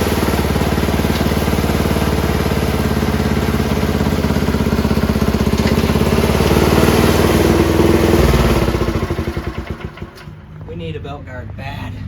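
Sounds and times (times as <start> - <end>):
lawn tractor engine running: 0.0 - 10.8.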